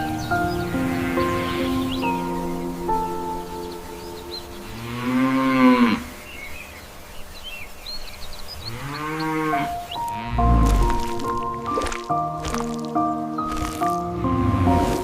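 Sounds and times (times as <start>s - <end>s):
soft background music: 0.0s - 6.7s, 8.7s - 15.0s
cow mooing: 4.8s - 6.1s, 8.7s - 11.2s.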